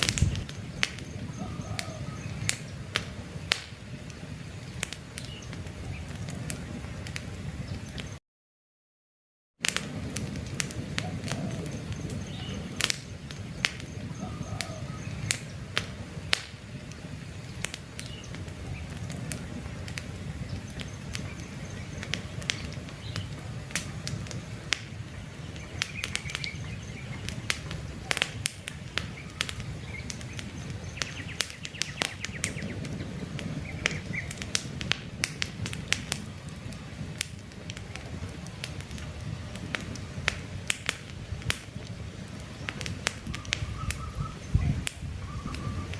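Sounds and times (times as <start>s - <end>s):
campfire crackling and popping: 0.0s - 8.2s, 9.6s - 45.9s
faint bird chirps: 1.0s - 2.8s, 13.8s - 15.5s, 29.1s - 32.8s, 43.3s - 45.9s.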